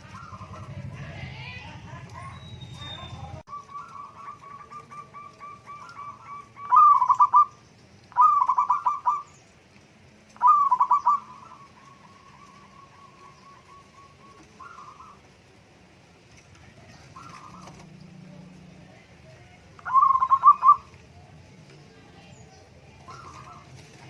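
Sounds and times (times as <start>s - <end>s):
dove cooing: 0.0s - 1.1s, 1.8s - 9.4s, 10.4s - 15.6s, 16.6s - 21.5s, 22.8s - 24.0s.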